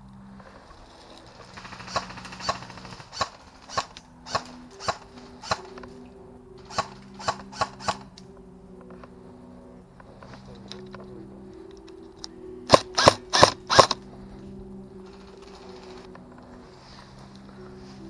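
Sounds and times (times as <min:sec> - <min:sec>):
airsoft gun shots: 0:12.7 - 0:14.0.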